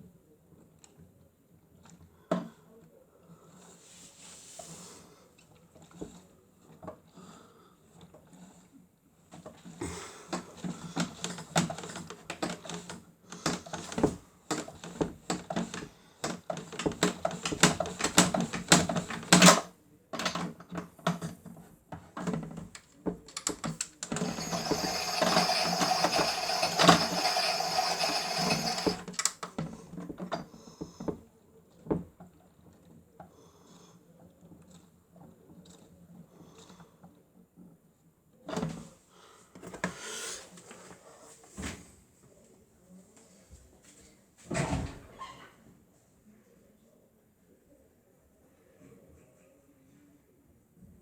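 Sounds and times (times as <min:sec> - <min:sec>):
plastic clicks and rattles: 0:22.3 - 0:29.6
toy motor whirring: 0:23.3 - 0:29.4.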